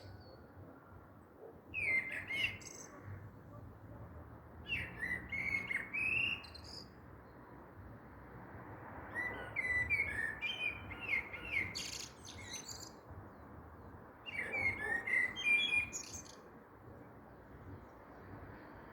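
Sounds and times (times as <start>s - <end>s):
songbird singing: 1.4s - 3.6s, 4.6s - 7.5s, 9.0s - 18.3s.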